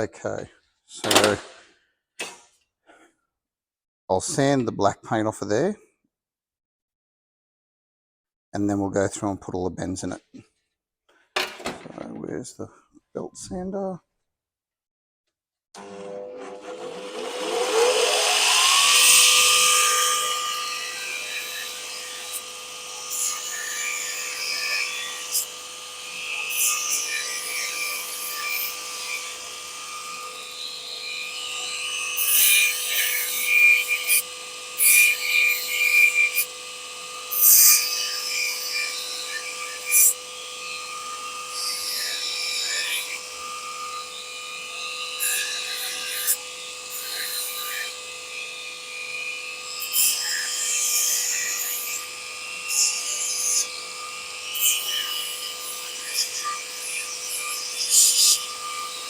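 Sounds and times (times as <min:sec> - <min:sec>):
belt sander whining: 0:15.8 - 0:59.0
sander belt rasping on steel: 0:15.8 - 0:59.0.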